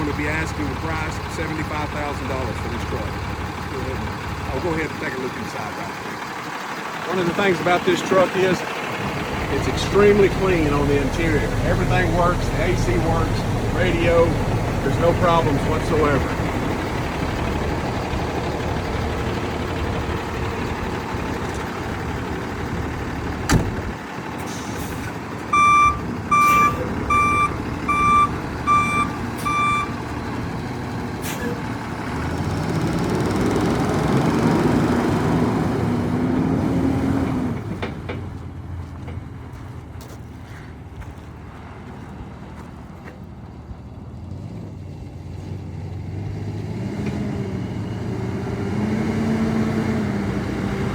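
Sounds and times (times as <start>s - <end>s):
truck diesel engine running: 0.0s - 50.9s
electronic warning beeps: 25.5s - 30.0s.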